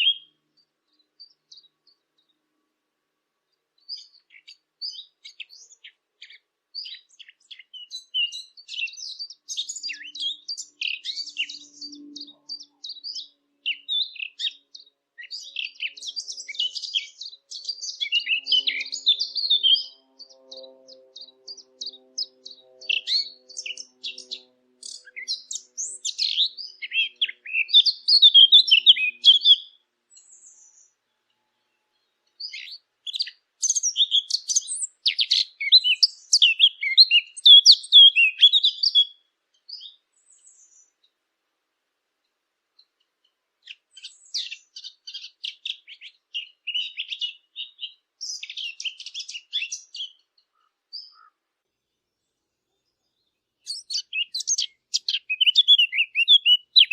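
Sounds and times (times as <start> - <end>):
warbler singing: 0.0 - 2.7, 3.4 - 41.1, 42.8 - 56.9.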